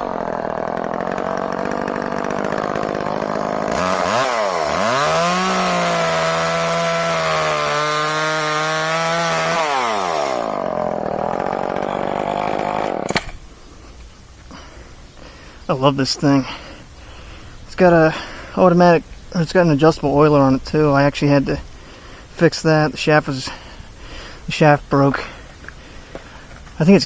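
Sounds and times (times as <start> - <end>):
chainsaw cutting wood: 0.0 - 13.6.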